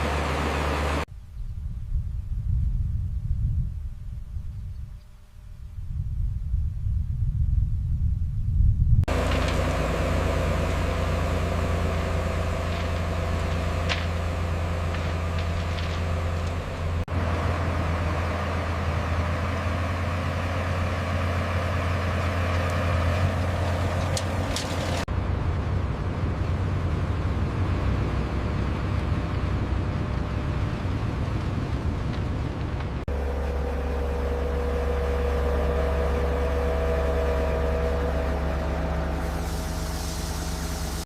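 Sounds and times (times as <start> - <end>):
heavy machinery diesel engine: 0.0 - 1.1, 9.1 - 41.0.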